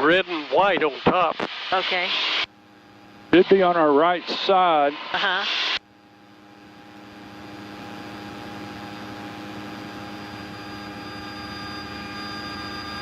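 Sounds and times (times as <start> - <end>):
light airplane cabin drone: 0.0 - 13.0.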